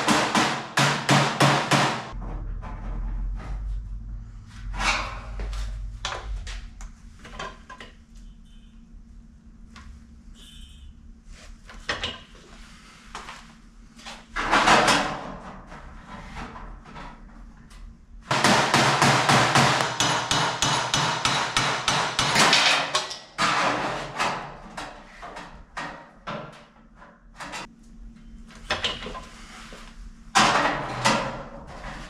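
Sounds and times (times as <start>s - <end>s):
hammer striking sheet steel: 0.0s - 2.2s, 18.3s - 24.5s.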